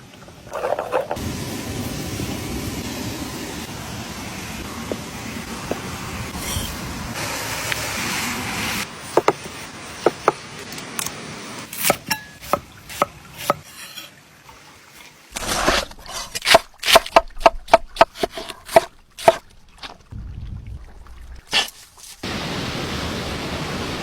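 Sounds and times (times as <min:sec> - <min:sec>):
knife chopping on wooden board: 0:09.1 - 0:10.4, 0:15.4 - 0:19.4.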